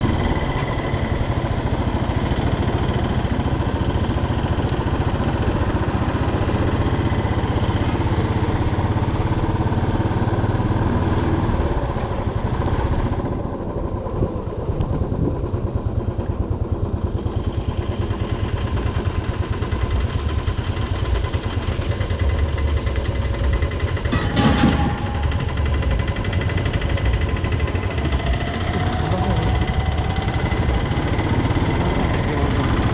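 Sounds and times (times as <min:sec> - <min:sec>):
motorcycle engine running: 0:00.0 - 0:32.9
sharp knock: 0:24.1 - 0:25.9.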